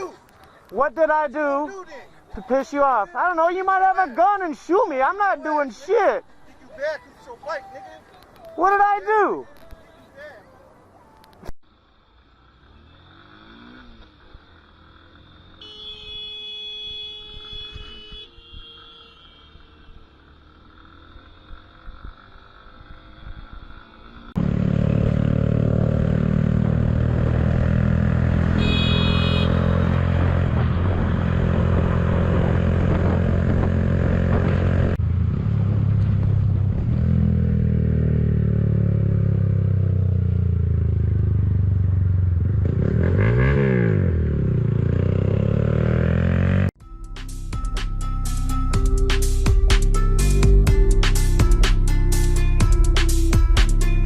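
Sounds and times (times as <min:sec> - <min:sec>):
motorcycle engine at speed: 0:12.1 - 0:16.4, 0:19.6 - 0:46.8.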